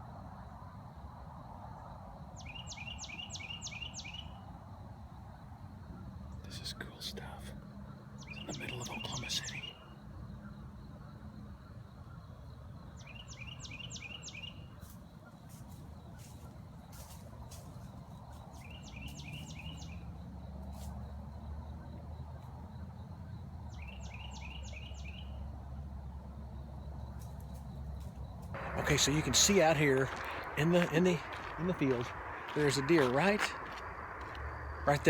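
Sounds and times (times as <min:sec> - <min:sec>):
low steady rumble: 0:28.5 - 0:35.0.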